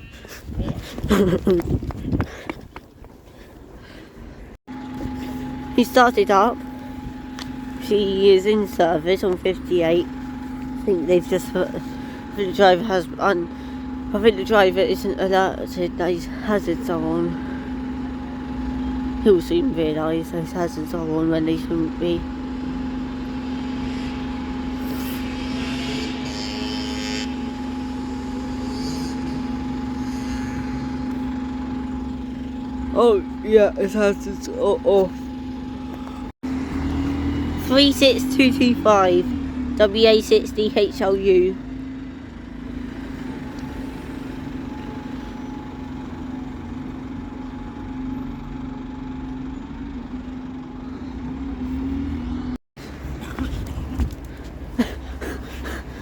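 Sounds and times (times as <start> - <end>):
bus engine idling: 2.6 - 25.5, 27.3 - 56.0.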